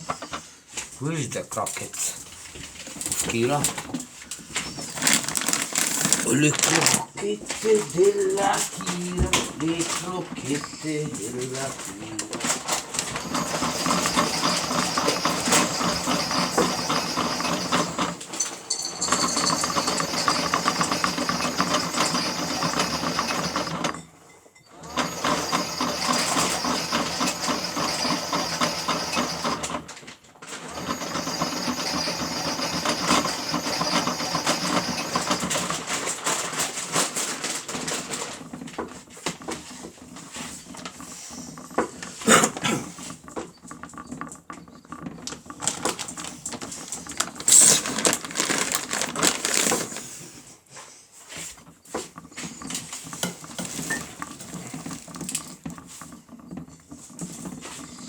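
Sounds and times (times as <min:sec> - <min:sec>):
toy washing machine motor rattling: 0:00.0 - 0:58.0.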